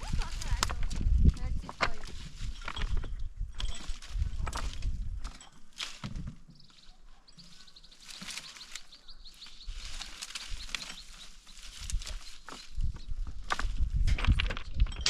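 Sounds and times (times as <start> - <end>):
bird chirping: 6.5 - 13.4.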